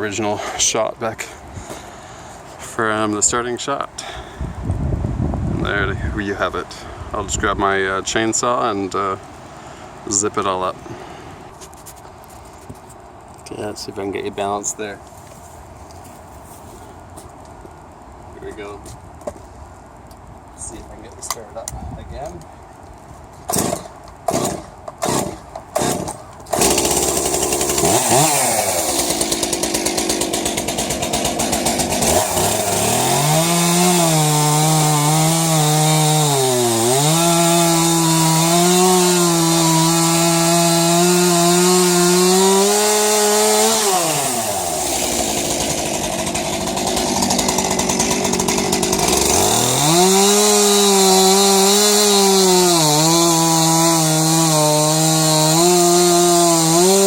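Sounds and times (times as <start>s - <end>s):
chainsaw pull-start: 23.5s - 57.0s
chainsaw revving and idling: 23.5s - 57.0s.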